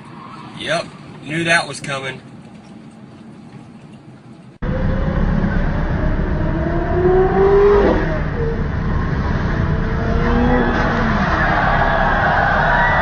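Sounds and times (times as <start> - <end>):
car engine accelerating hard: 4.6 - 13.0
heavy rushing noise: 4.6 - 13.0.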